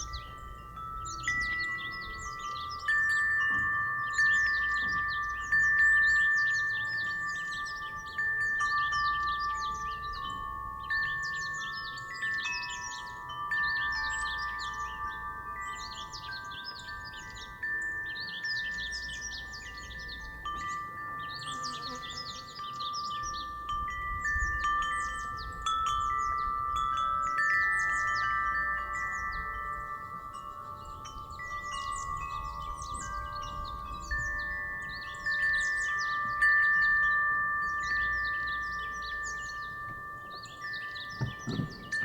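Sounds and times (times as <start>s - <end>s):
wind chime ringing: 0.0s - 42.0s
wind rumble: 39.7s - 42.0s.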